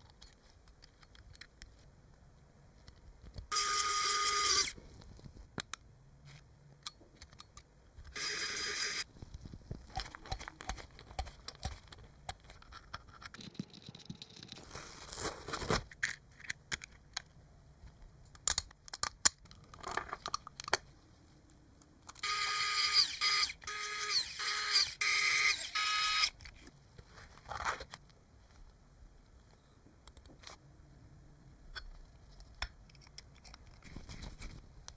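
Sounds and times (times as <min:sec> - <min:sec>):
small parts clicking and scraping: 0:00.0 - 0:01.9, 0:09.7 - 0:14.9, 0:15.9 - 0:17.3, 0:31.7 - 0:34.6
small motor whining: 0:03.5 - 0:04.8.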